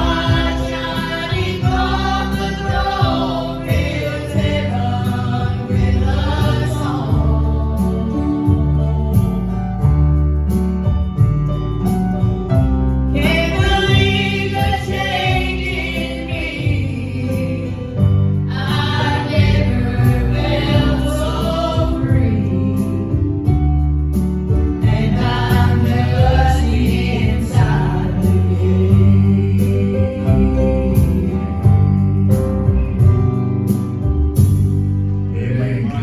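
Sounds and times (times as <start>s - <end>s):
vocal group singing gospel: 0.0s - 9.9s, 13.1s - 23.6s, 24.5s - 32.0s, 35.3s - 36.0s
guitar: 0.0s - 36.0s
low instrumental backing: 0.0s - 36.0s.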